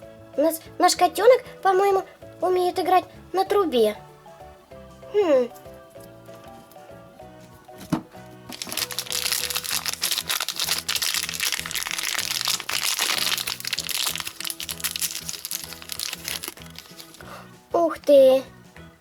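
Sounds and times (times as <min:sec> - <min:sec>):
background music: 0:00.0 - 0:19.0
plastic wrapper crinkling: 0:08.5 - 0:17.3.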